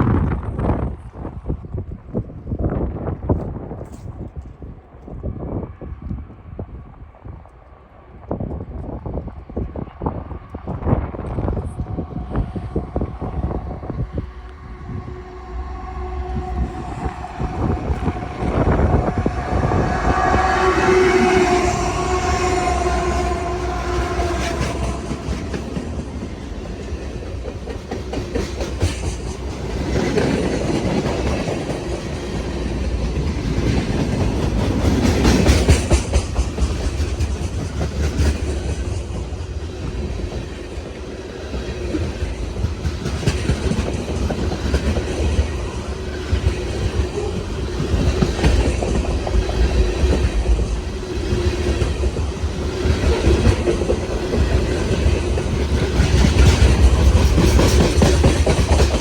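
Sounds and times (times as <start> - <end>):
low train rumble: 0.0 - 59.0
train wheels clacking on rail joints: 10.6 - 59.0.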